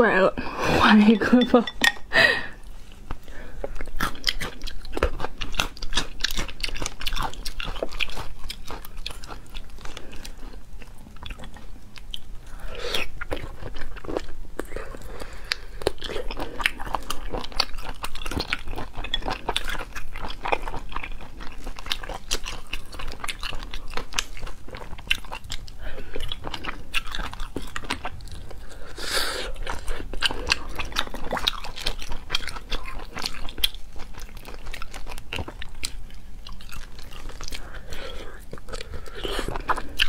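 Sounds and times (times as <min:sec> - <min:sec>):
wet chewing and lip smacks: 0:29.6 - 0:40.0.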